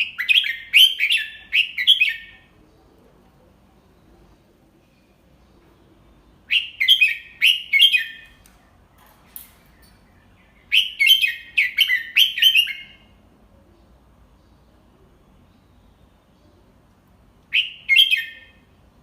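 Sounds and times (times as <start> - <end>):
bird singing whistled notes: 0.0 - 2.5, 6.1 - 13.2, 17.5 - 18.8.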